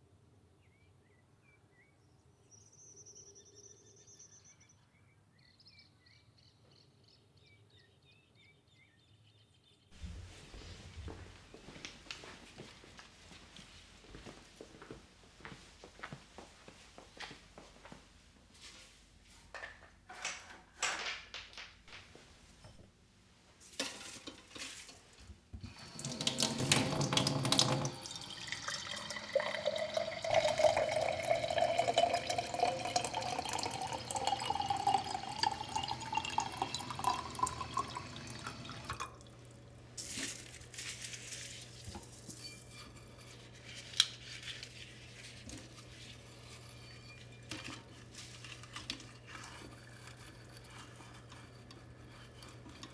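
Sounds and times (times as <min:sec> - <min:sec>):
tap water filling container: 0:23.8 - 0:42.4.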